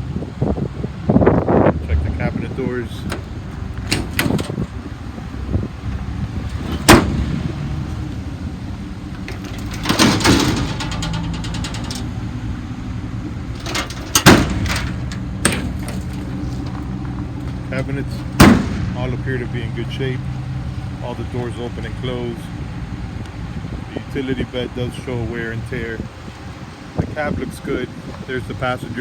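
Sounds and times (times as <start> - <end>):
low engine idle: 2.3 - 26.0
metal cabinet doors slamming: 3.0 - 4.9, 5.9 - 8.2, 9.1 - 12.3, 13.5 - 19.0
latches clacking: 3.0 - 19.0.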